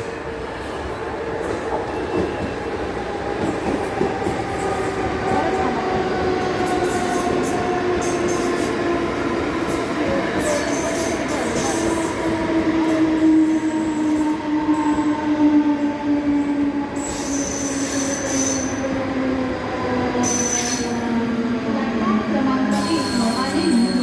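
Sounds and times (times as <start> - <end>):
electric train rumbling on rails: 0.0 - 24.0
wheel squeals: 22.8 - 24.0.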